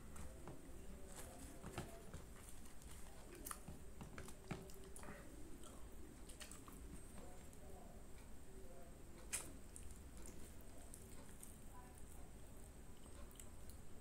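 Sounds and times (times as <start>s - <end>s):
person chewing: 2.2s - 7.2s, 12.9s - 13.9s.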